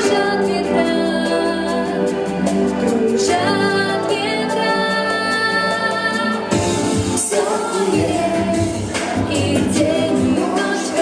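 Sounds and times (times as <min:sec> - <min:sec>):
instrumental accompaniment: 0:00.0 - 0:11.0
woman singing slow song: 0:07.1 - 0:11.0.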